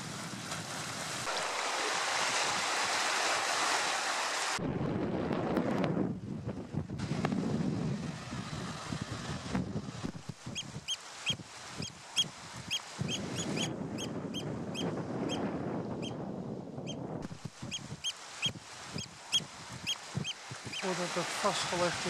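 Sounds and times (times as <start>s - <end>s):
bird calling in flight: 10.5s - 15.4s, 17.6s - 20.9s.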